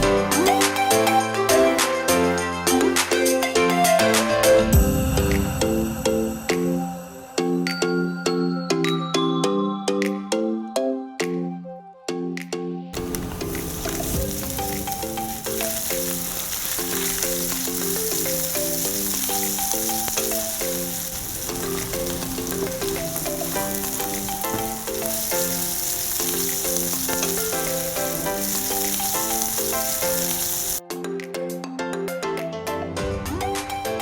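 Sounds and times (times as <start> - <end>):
light background music: 0.0 - 34.0
meat and vegetables sizzling in a pan: 13.0 - 30.8.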